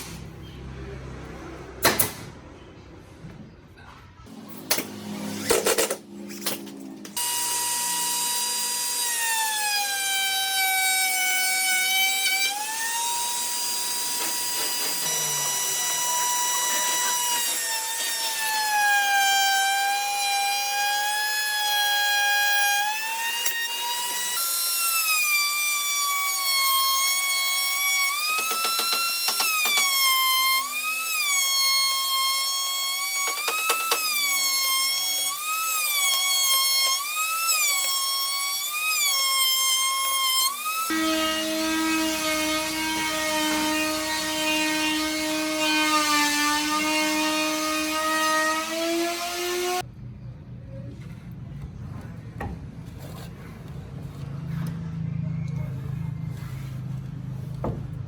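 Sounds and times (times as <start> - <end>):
power tool motor whining: 4.3 - 49.9.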